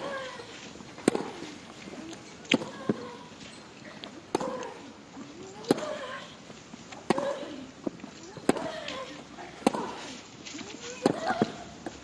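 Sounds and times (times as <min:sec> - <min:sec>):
tennis ball struck by racket: 0:01.0 - 0:01.5, 0:04.3 - 0:04.6, 0:07.0 - 0:07.4, 0:08.4 - 0:08.9, 0:09.6 - 0:10.1
women grunting: 0:08.4 - 0:10.2.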